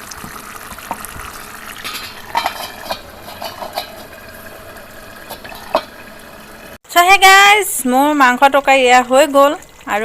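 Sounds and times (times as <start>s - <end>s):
pot simmering hiss: 0.0s - 6.8s.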